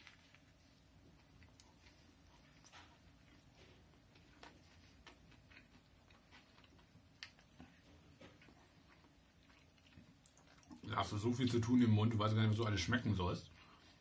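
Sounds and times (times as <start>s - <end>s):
closed-mouth chewing clicks: 1.1s - 11.0s.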